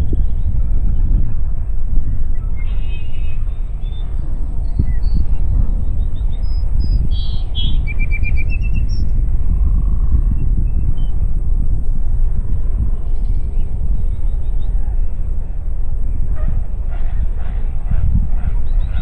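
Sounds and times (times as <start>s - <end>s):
wind buffeting microphone: 0.0s - 19.0s
small birds chirping: 2.2s - 9.2s.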